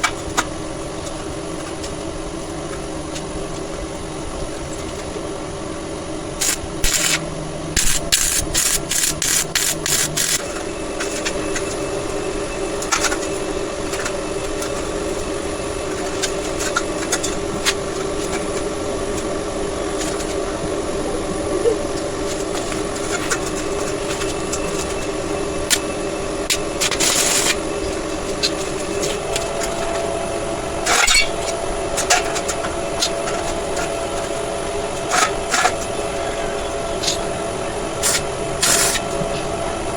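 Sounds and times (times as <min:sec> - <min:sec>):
machine hum: 0:00.0 - 0:39.9
metal scraping: 0:25.7 - 0:37.4.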